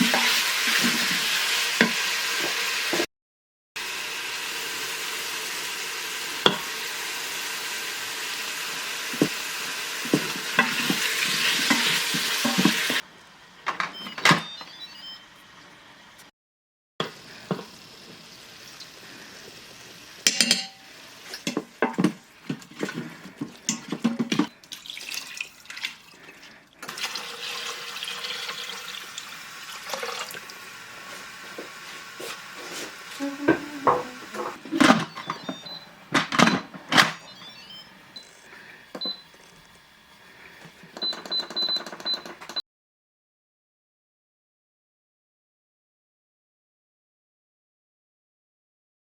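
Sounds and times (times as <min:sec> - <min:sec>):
water running from a tap: 0:00.0 - 0:02.8, 0:03.8 - 0:13.0, 0:17.1 - 0:34.4.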